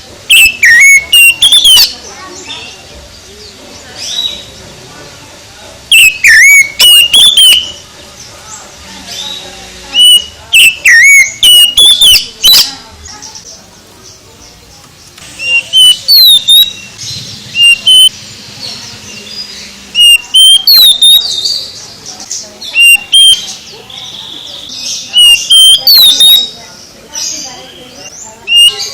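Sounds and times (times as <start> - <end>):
bird singing whistles and chirps: 0.3 - 2.8, 5.9 - 7.9, 9.2 - 12.8, 15.4 - 18.2, 19.1 - 21.8, 22.6 - 26.6, 27.2 - 28.9.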